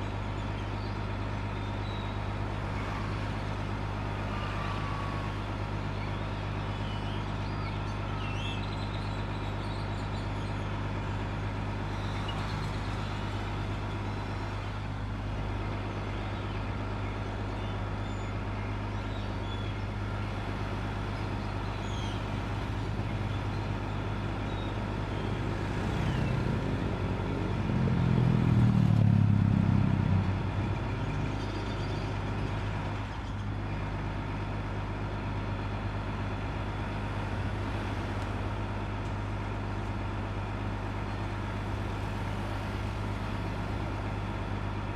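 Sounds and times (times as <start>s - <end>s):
low vehicle rumble: 0.0s - 18.1s, 18.7s - 44.9s
bus engine idling: 0.0s - 44.9s
street traffic: 0.0s - 44.9s
small birds chirping: 18.9s - 26.6s.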